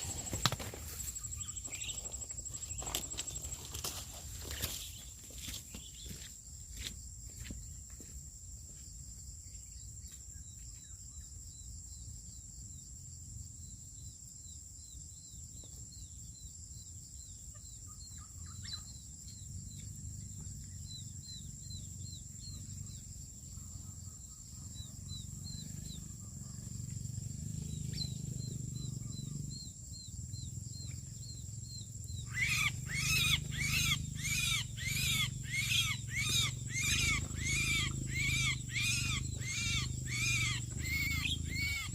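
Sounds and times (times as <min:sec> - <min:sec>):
bird giving harsh calls: 0:32.2 - 0:41.9.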